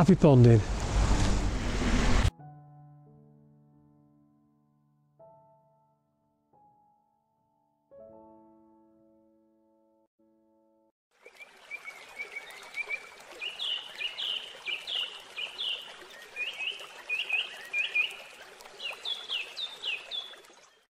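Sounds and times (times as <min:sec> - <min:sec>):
bird chirping: 0:12.2 - 0:20.4.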